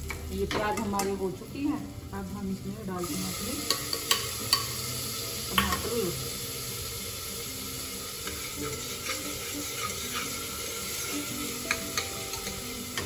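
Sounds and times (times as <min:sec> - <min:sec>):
tomatoes sizzling in hot oil: 0:00.0 - 0:13.0
spoon clinking against pot: 0:03.6 - 0:04.8, 0:05.5 - 0:05.9, 0:11.5 - 0:13.0
metal spoon stirring: 0:08.2 - 0:13.0.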